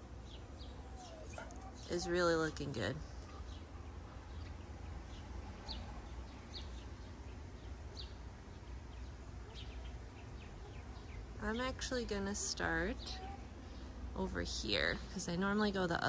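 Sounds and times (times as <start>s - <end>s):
steady low rumble: 0.0s - 16.0s
bird chirps: 0.2s - 11.8s.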